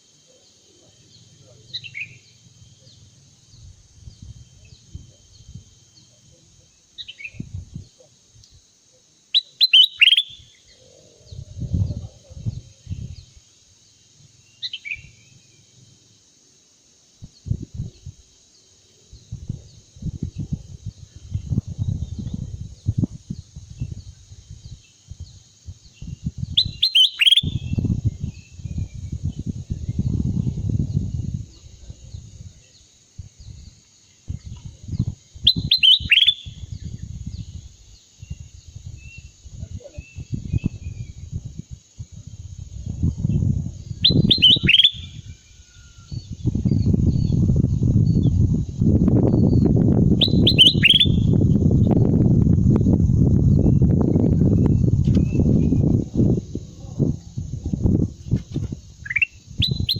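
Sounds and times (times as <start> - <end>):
high insect hiss: 0.0 - 59.9
bird call: 9.3 - 10.8, 26.6 - 27.7, 35.5 - 36.6, 44.0 - 46.1, 50.2 - 51.3.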